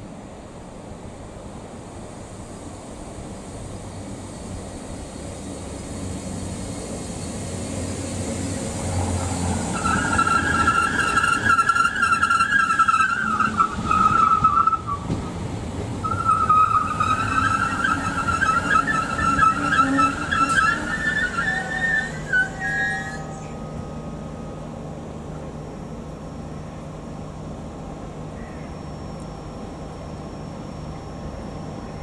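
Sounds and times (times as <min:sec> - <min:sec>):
train rumbling past: 0:00.0 - 0:32.0
high wavering squeal: 0:08.8 - 0:15.1, 0:16.0 - 0:26.8.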